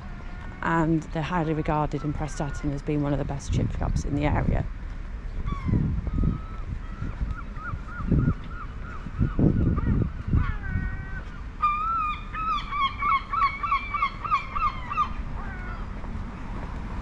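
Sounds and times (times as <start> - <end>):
birds honking calls: 5.2 - 16.1.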